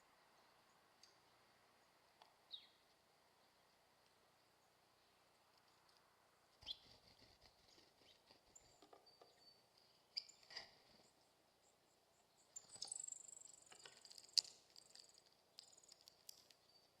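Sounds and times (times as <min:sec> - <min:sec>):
birds tapping at feeder: 0:06.6 - 0:11.2, 0:12.5 - 0:17.0.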